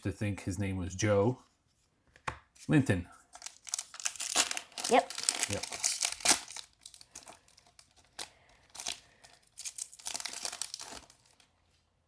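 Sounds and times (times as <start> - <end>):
wrappers crinkling and rustling: 3.3 - 11.5.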